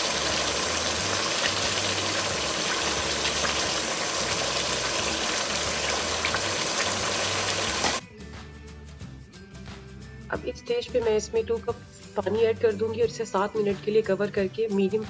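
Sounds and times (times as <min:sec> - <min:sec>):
food sizzling in hot oil: 0:00.0 - 0:08.0
oil popping: 0:00.0 - 0:08.0.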